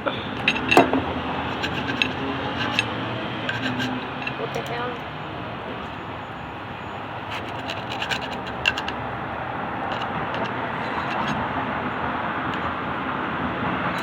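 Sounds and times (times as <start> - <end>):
scratching and clicking: 0.3 - 5.1, 7.2 - 9.0, 9.8 - 11.4, 12.4 - 12.9.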